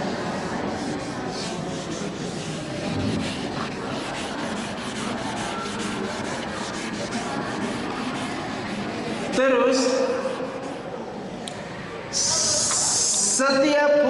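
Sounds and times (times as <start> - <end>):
eraser scrubbing a board: 0.0 - 11.0.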